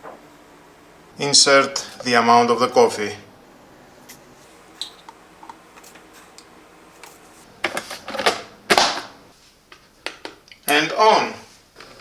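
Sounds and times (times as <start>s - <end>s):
rustling and scraping of coffee grounds: 4.0s - 8.2s.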